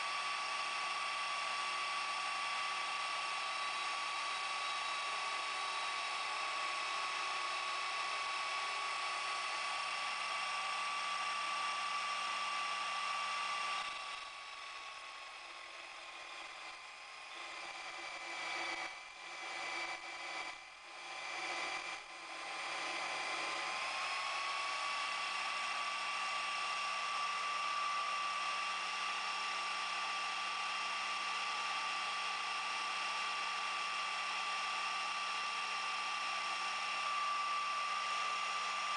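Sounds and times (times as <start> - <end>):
lathe motor whine: 0.0 - 38.9.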